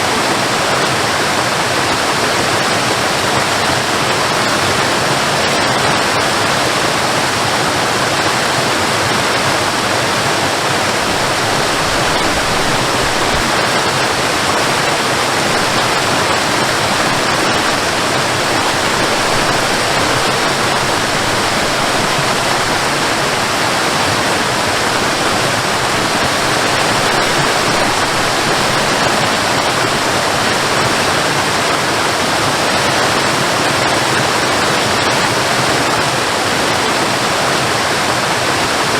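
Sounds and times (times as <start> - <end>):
waterfall roaring: 0.0 - 38.9.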